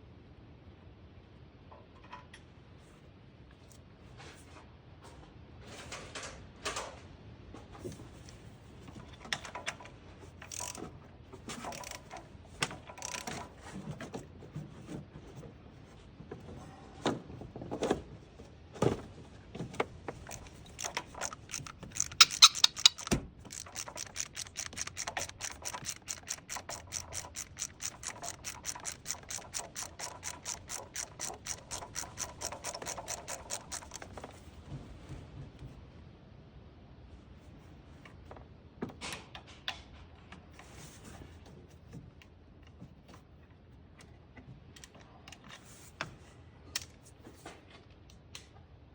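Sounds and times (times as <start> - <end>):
ratchet clicking: 10.4 - 10.8, 11.6 - 12.3, 13.0 - 13.4, 20.2 - 34.2
tool clanks: 20.1 - 34.2.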